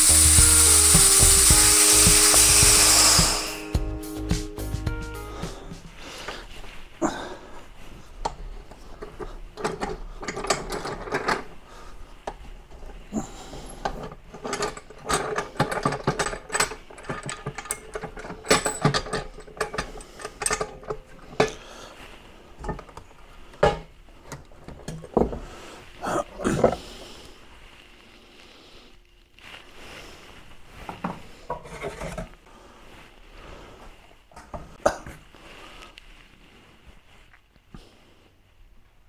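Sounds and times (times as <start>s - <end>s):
metal pressure pot clanking: 9.6s - 11.5s, 14.0s - 21.6s.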